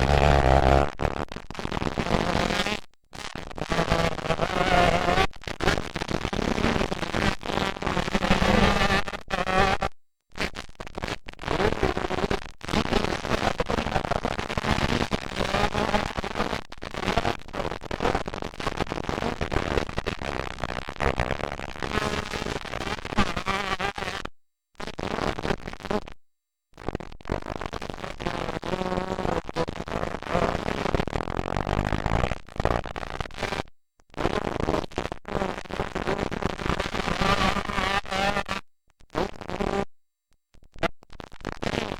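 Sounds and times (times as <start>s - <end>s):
loud crackling noise: 0.0s - 1.1s.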